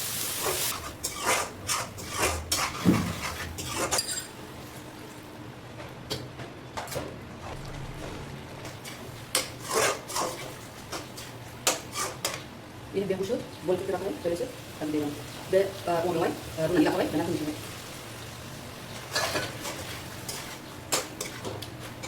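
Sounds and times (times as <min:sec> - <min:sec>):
utensils clinking against cookware: 0:00.5 - 0:04.4
low steady hum: 0:04.1 - 0:09.5.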